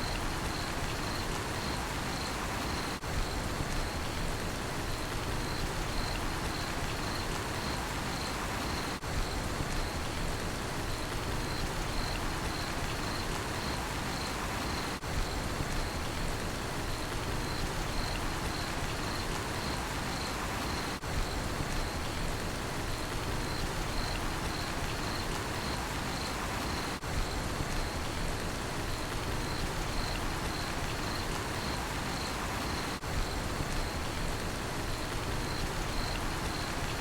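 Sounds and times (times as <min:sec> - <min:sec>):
cricket chirping: 0:00.0 - 0:04.2, 0:05.0 - 0:09.0, 0:11.3 - 0:16.1, 0:17.3 - 0:22.2, 0:23.3 - 0:27.0, 0:29.3 - 0:34.2, 0:34.9 - 0:37.0
steady rain falling: 0:00.0 - 0:37.0.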